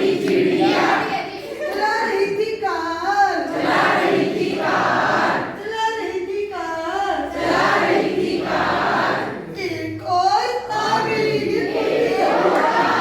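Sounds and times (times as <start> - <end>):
group of voices singing: 0.0 - 1.6, 3.4 - 5.6, 7.2 - 9.6, 10.7 - 13.0.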